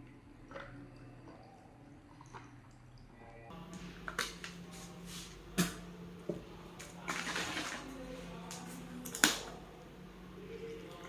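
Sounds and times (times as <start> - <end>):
steady low hum: 2.6 - 11.0.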